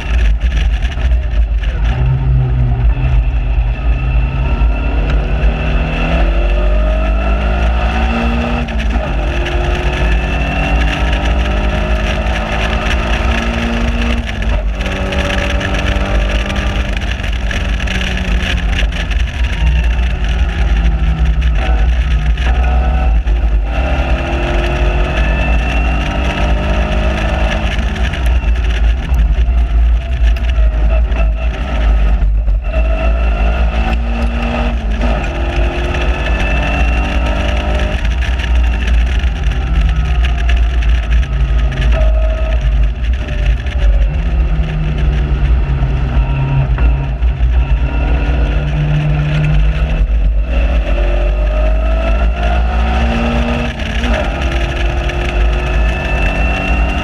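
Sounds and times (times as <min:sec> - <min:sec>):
sports car engine revving: 0:00.0 - 0:57.0
wind rumble on microphone: 0:00.0 - 0:57.0.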